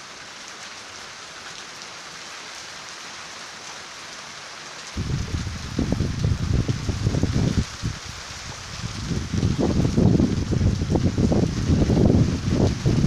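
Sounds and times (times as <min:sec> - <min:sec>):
steady rain falling: 0:00.0 - 0:13.0
loud low rumble: 0:05.0 - 0:07.4.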